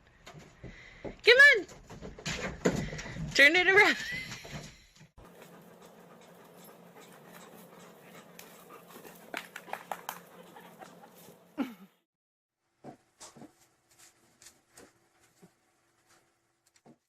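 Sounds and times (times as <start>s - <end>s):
dog panting: 5.2s - 11.6s.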